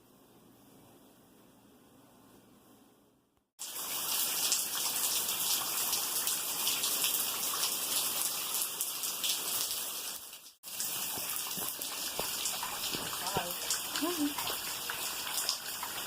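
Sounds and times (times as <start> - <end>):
rushing water: 3.6 - 16.0.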